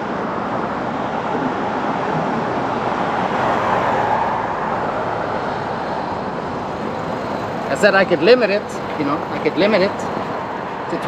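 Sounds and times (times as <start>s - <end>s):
road traffic rushing past: 0.0s - 11.0s.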